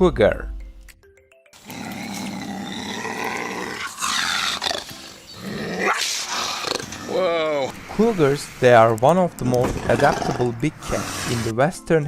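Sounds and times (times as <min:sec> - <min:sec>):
cougar growling and snarling: 0:01.6 - 0:07.8, 0:09.4 - 0:11.5.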